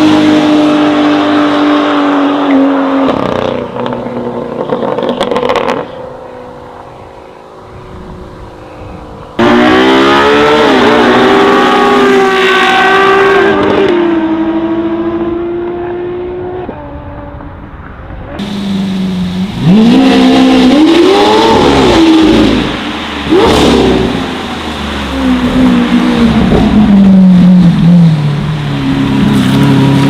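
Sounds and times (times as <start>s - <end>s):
car engines revving and accelerating: 0.0s - 30.0s.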